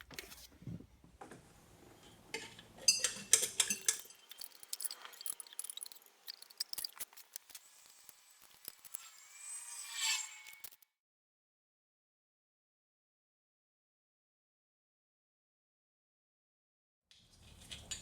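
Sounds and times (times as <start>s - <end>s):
metal tools clinking on workbench: 2.4s - 7.6s.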